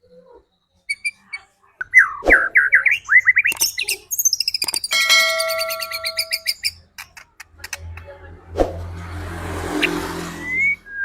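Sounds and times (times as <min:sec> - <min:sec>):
songbird singing whistled notes: 0:00.5 - 0:06.8.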